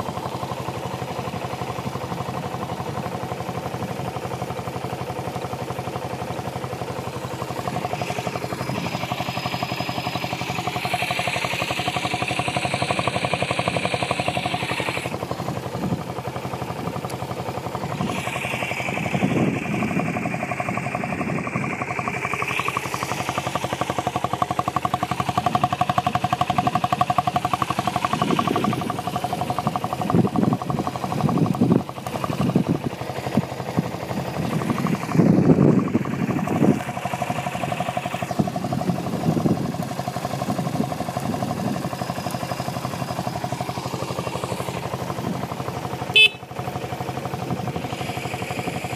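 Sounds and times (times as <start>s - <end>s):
motorcycle engine idling: 0.0s - 48.9s.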